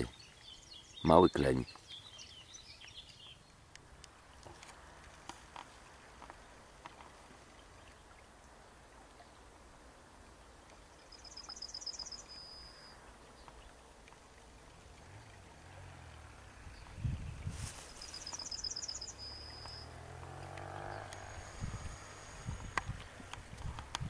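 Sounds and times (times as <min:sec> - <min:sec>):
low steady rumble: 0:13.0 - 0:18.3
small bird trilling: 0:18.0 - 0:19.8.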